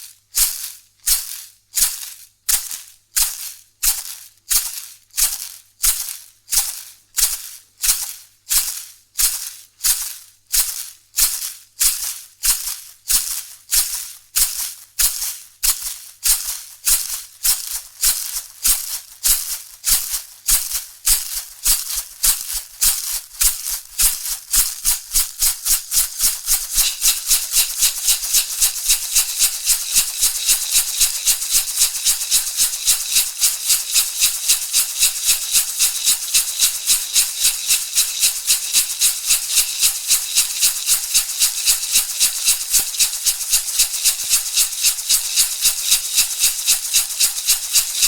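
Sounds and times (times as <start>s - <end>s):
rattle shaken rhythmically: 15.8s - 48.0s.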